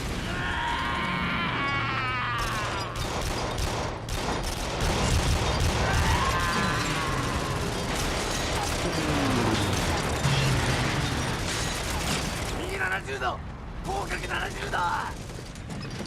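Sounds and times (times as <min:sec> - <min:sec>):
rapid machine-gun fire: 0:02.4 - 0:12.5, 0:15.0 - 0:15.7.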